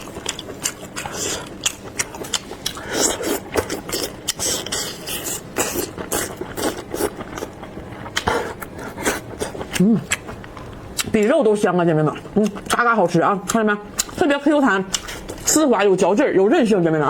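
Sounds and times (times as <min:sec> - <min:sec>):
chewing with wet mouth clicks: 0:00.0 - 0:11.3, 0:13.4 - 0:14.2, 0:14.9 - 0:15.5.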